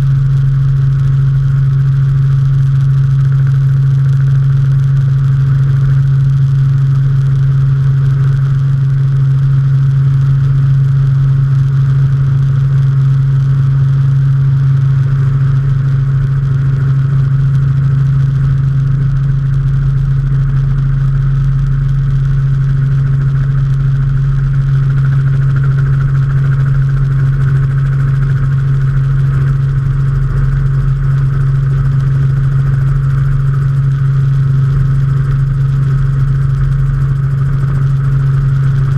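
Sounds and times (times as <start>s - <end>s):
helicopter engine and rotors droning: 0.0s - 38.9s.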